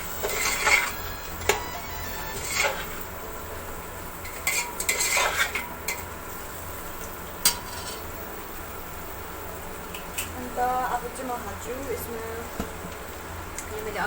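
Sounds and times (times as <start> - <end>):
faint sizzle: 0.0 - 14.0
spoon scraping cooking pot: 0.1 - 3.0, 4.2 - 6.1, 7.4 - 8.1.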